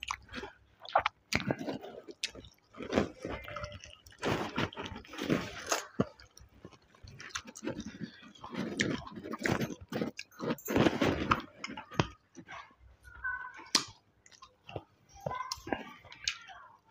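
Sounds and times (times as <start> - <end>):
person chewing and biting food: 0.0 - 12.6.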